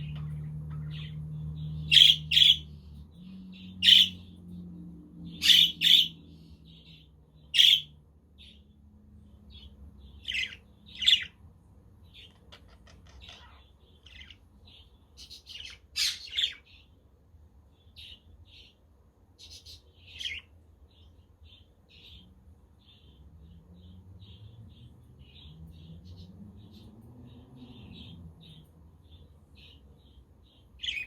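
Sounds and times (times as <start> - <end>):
budgerigars chirping: 0.0 - 2.9, 3.5 - 4.3, 5.3 - 8.6, 9.5 - 11.4, 12.0 - 16.9, 30.5 - 31.0.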